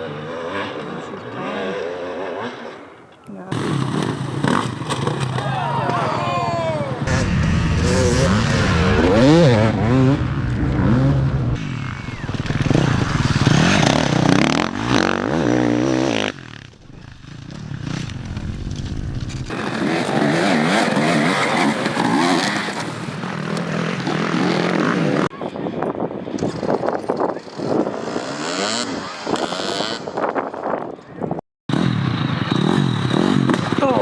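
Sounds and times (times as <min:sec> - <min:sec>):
dirt bike engines revving: 0:00.0 - 0:31.0, 0:31.7 - 0:34.0.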